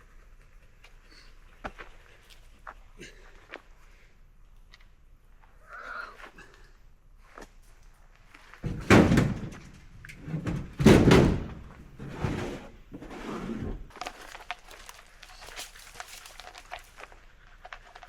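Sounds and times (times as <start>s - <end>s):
rustling of handled object: 13.8s - 18.0s.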